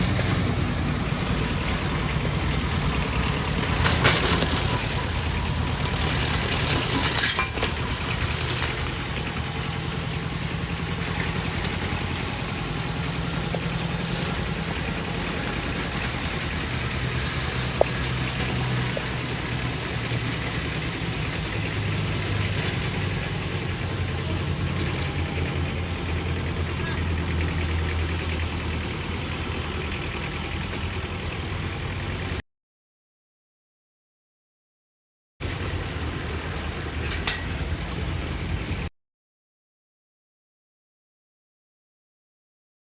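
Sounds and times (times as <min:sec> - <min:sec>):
tractor engine running: 0:00.0 - 0:32.4, 0:35.4 - 0:38.9.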